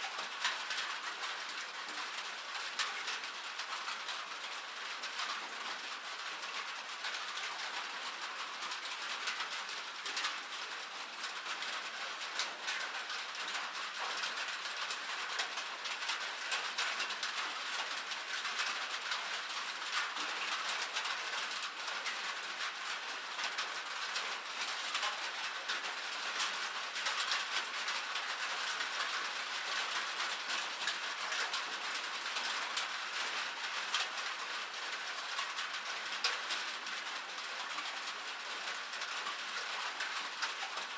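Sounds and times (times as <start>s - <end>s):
raindrops pattering: 0.0s - 40.9s.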